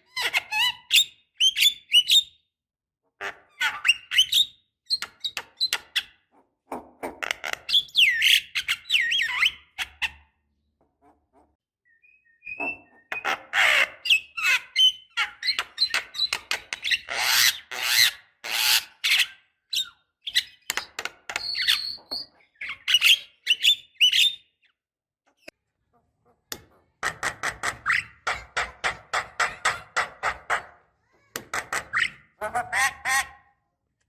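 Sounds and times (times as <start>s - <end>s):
bird singing whistles and harsh calls: 11.9s - 13.2s.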